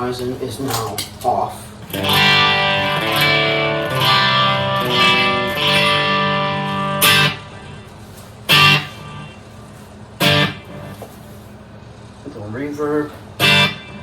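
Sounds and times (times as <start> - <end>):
clean electric guitar chords: 1.9 - 9.6, 10.2 - 11.2, 13.1 - 14.0.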